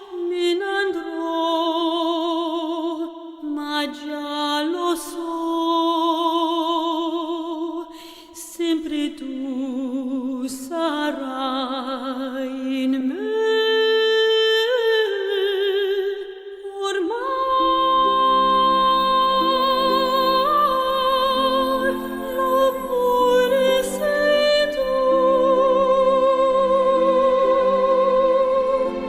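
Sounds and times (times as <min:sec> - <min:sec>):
woman singing classical ballad: 0:00.0 - 0:29.0
soft sustained accompaniment: 0:17.2 - 0:29.0.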